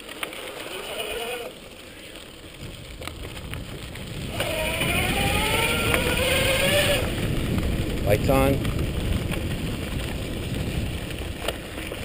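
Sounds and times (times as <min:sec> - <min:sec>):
tyre noise: 0:00.0 - 0:12.0
electric motor whining: 0:00.6 - 0:01.6, 0:04.3 - 0:07.2
wind noise: 0:02.4 - 0:12.0.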